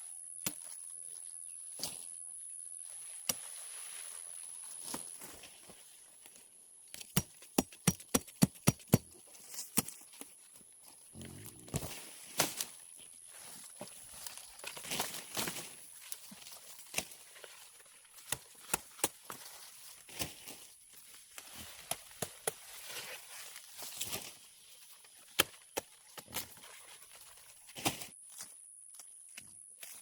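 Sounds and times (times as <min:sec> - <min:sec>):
rustling stalks and leaves: 0:00.5 - 0:07.4, 0:09.0 - 0:30.0
sugarcane chops and snaps: 0:06.9 - 0:10.4, 0:18.1 - 0:19.5, 0:21.4 - 0:22.8, 0:25.1 - 0:26.6.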